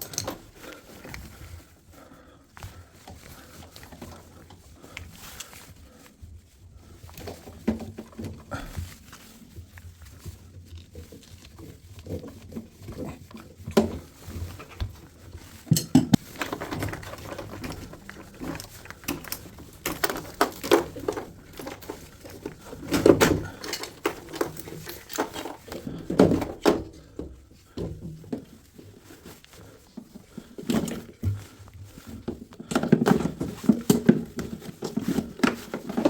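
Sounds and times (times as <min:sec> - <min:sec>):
hand tools and metal parts clinking: 0:00.0 - 0:01.6, 0:12.9 - 0:27.2.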